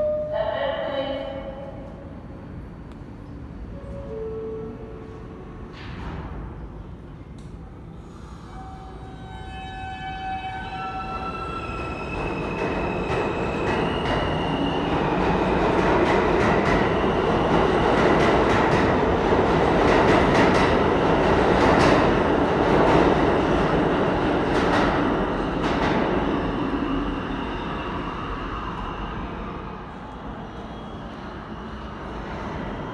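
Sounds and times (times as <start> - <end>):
train wheels rumbling on rails: 11.3 - 29.1.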